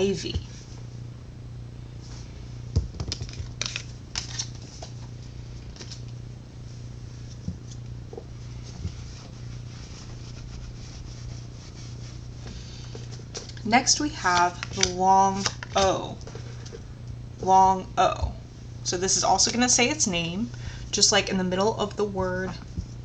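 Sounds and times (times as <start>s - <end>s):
low electrical hum: 0.0s - 23.0s
cards clicking and rustling: 2.8s - 4.9s, 5.7s - 6.1s, 14.3s - 16.7s.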